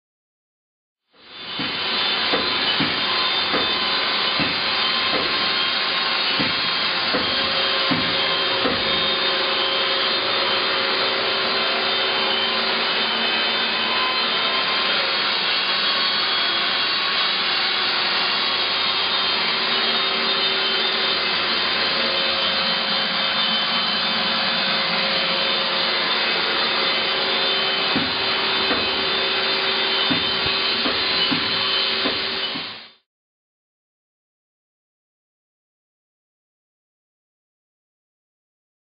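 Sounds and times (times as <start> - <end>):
lathe humming and whining: 1.2 - 33.0
knocks: 1.6 - 3.8, 4.4 - 5.5, 6.4 - 9.1, 27.9 - 29.0, 30.0 - 32.8.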